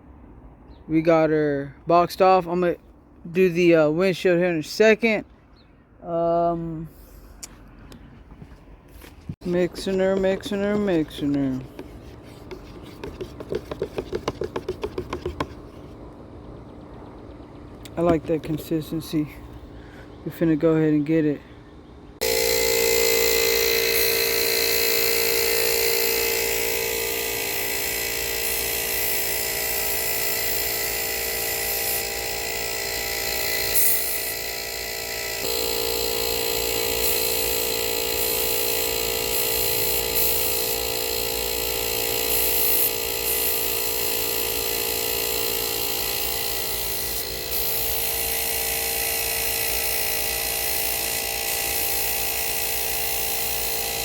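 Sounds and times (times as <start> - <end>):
paint sprayer motor whine: 9.0 - 15.7, 22.2 - 54.0.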